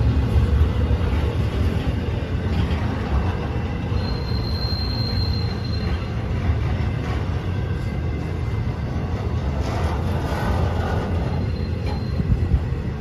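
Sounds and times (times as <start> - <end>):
train rumbling past: 0.0 - 13.0
high-pitched wheel squeal: 3.8 - 6.4, 10.6 - 12.6.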